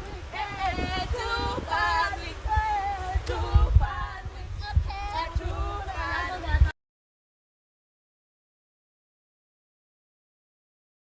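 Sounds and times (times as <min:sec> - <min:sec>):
woman singing: 0:00.0 - 0:06.8.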